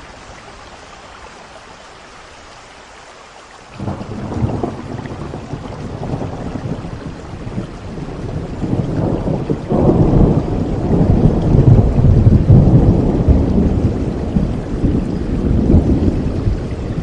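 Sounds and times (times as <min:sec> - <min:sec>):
steady rain: 0:00.0 - 0:17.0
thunder rumbling: 0:03.8 - 0:17.0.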